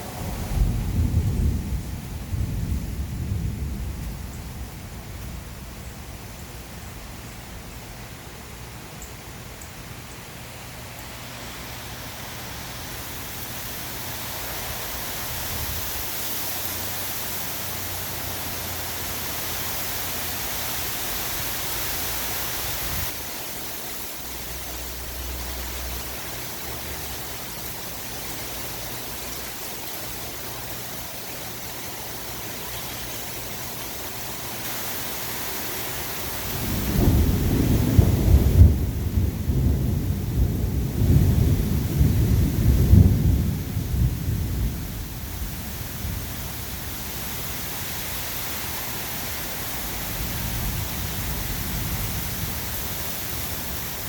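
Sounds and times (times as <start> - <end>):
thunder rumbling: 0.0 - 5.8, 36.3 - 46.6, 49.9 - 54.0
steady rain: 0.0 - 54.0.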